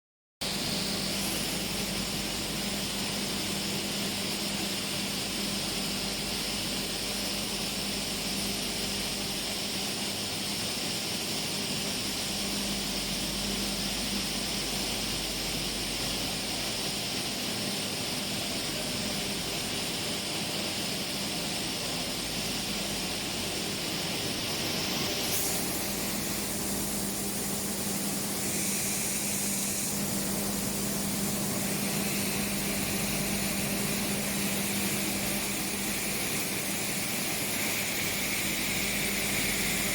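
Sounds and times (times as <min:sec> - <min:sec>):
high mechanical hiss: 0:00.5 - 0:03.9, 0:22.1 - 0:39.9
milling machinery drone: 0:22.2 - 0:39.9.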